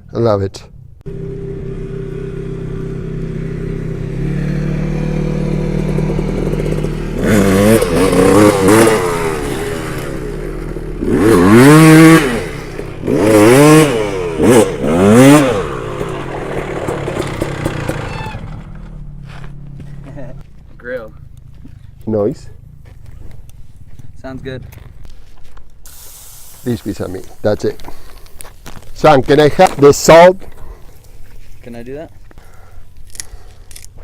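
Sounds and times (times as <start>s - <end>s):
dirt bike engine idling and revving: 1.0s - 25.1s.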